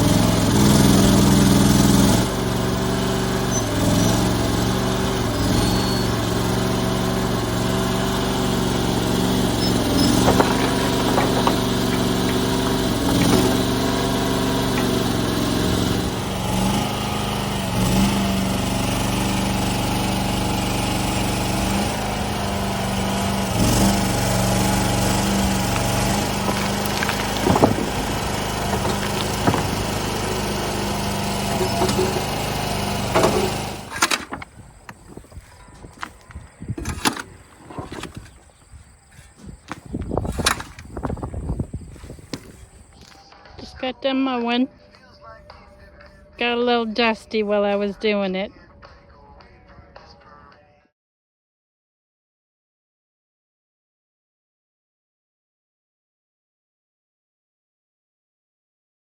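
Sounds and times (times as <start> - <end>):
engine running under load: 0.0 - 43.1
sharp knocks and clatters: 8.7 - 16.2, 24.6 - 38.5, 39.4 - 41.3.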